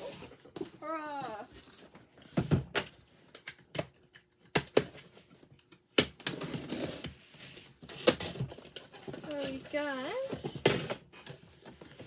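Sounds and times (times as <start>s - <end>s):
cardboard rustling scrape: 6.5s - 12.0s.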